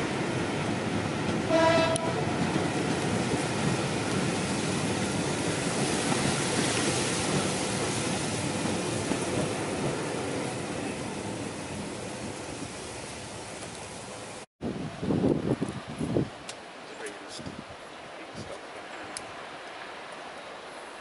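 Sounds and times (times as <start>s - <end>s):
train coaches rolling past: 0.0s - 14.5s, 16.6s - 21.0s
locomotive horn toot: 1.5s - 2.2s.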